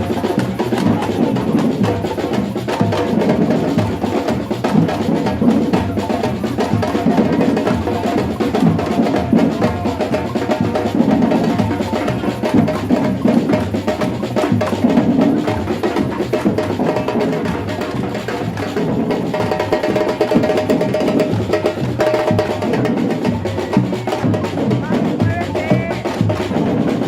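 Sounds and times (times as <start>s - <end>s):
drum group playing samba: 0.0s - 27.0s.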